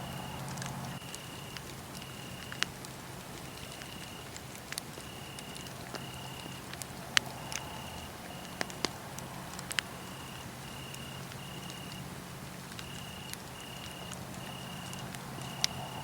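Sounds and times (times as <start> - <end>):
crickets chirping: 0.0 - 2.6, 5.0 - 6.6, 7.3 - 8.8, 9.9 - 12.0, 12.8 - 16.0
wood fire crackling: 0.0 - 16.0.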